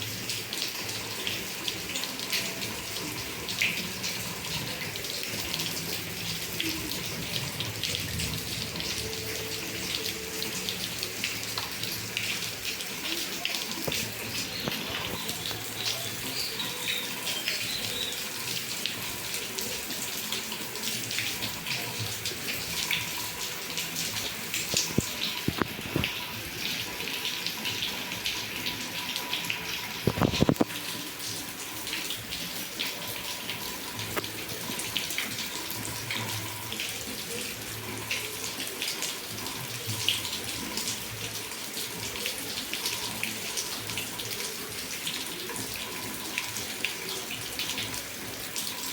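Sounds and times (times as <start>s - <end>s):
heavy rain falling: 0.0s - 27.2s
water pouring and splashing: 0.0s - 48.9s.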